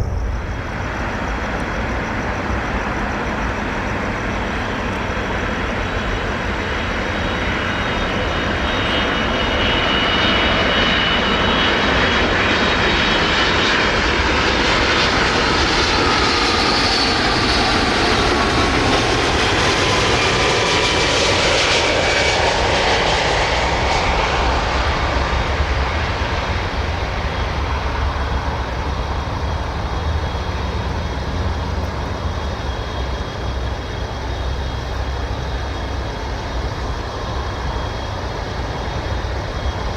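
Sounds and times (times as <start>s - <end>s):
jet plane passing overhead: 0.0s - 39.9s.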